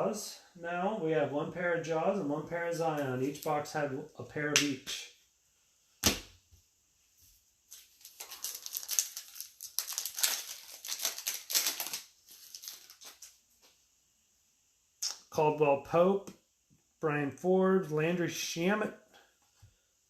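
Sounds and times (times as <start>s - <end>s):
wrapper tearing and crinkling: 7.7s - 13.4s.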